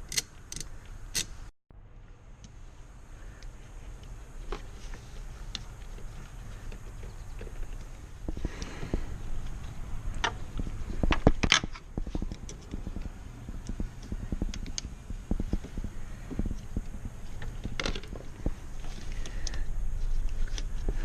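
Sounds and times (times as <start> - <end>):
low rumble: 7.9 - 21.0.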